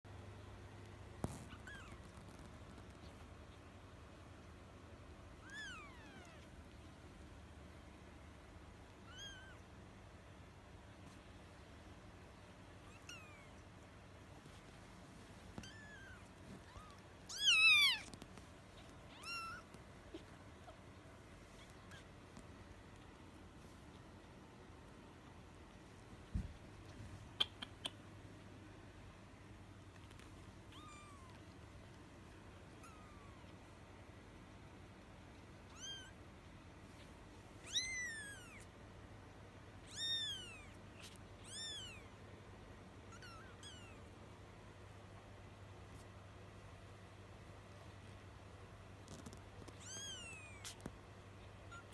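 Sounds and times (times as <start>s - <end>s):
kittens mewing: 15.6s - 20.9s, 37.6s - 38.7s, 43.1s - 44.0s.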